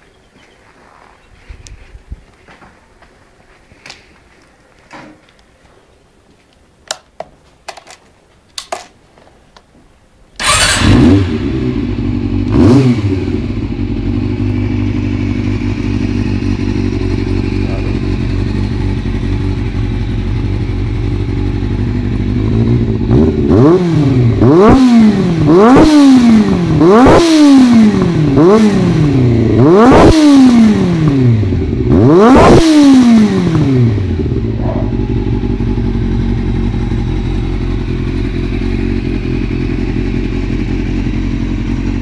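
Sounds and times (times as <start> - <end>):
motorcycle engine idling and revving: 10.4 - 42.0.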